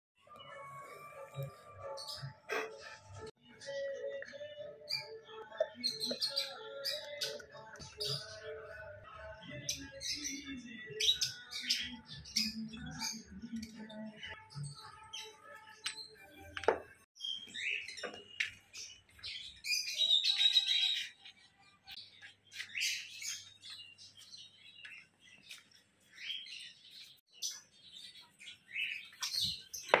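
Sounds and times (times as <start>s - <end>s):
small birds chirping and squawking: 9.5s - 15.6s, 17.2s - 30.0s.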